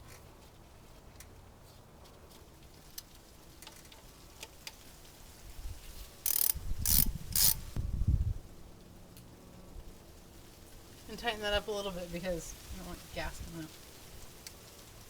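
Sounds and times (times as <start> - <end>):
ratchet wrench clicking: 6.2 - 7.8
faint ticks: 14.2 - 15.0.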